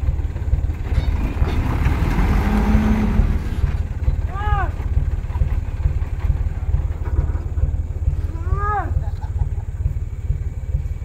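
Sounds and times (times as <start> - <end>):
diesel engine throbbing: 0.0 - 11.0
man calling out: 4.3 - 4.8, 8.3 - 9.0.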